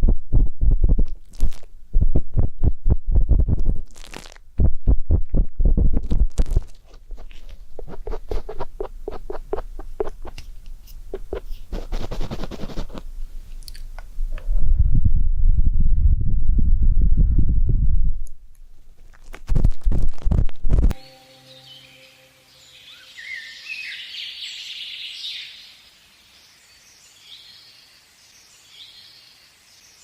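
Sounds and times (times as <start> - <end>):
fine crackling scratches: 1.0 - 1.7, 3.5 - 4.4, 5.8 - 13.1, 19.1 - 21.0
loud low rubbing: 4.6 - 13.3
ear-pick scraping and rubbing: 6.4 - 13.1.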